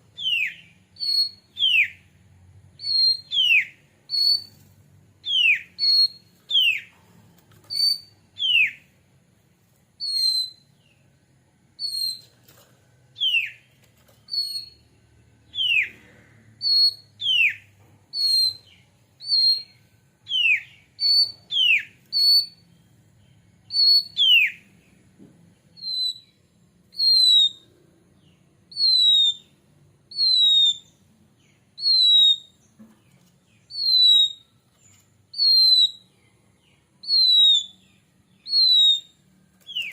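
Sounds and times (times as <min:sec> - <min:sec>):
bird whistling: 0:00.2 - 0:02.1, 0:02.8 - 0:04.6, 0:05.2 - 0:06.9, 0:07.7 - 0:08.9, 0:10.0 - 0:10.8, 0:11.8 - 0:12.3, 0:13.2 - 0:13.7, 0:14.3 - 0:22.6, 0:23.7 - 0:24.7, 0:25.7 - 0:32.7, 0:33.6 - 0:36.2, 0:37.0 - 0:39.9.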